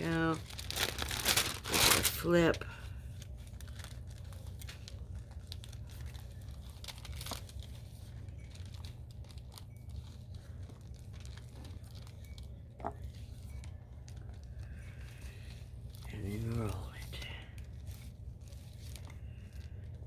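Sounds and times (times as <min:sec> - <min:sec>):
wax paper crinkling: 0:00.0 - 0:20.0.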